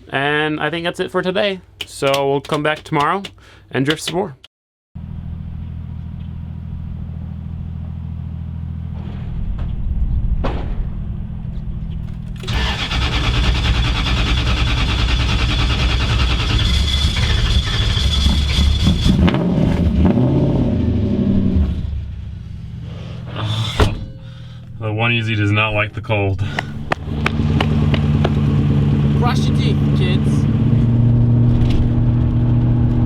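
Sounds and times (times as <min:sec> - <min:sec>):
truck engine running: 0:12.4 - 0:19.3, 0:26.6 - 0:31.1.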